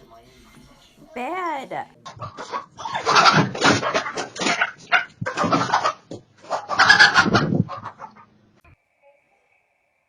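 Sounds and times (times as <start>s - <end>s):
chicken squawking and clucking: 2.1s - 8.4s.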